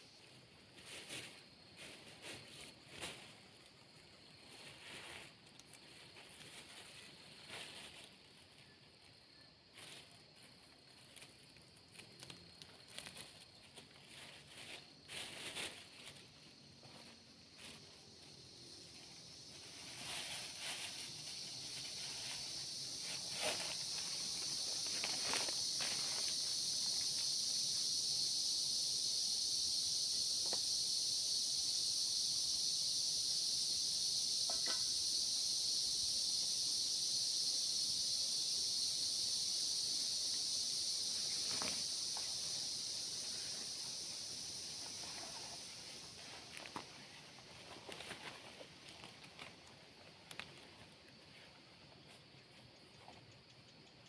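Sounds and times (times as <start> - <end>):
insect chorus shrill hiss: 0.0 - 54.0
light rustles and crackles: 46.2 - 51.5.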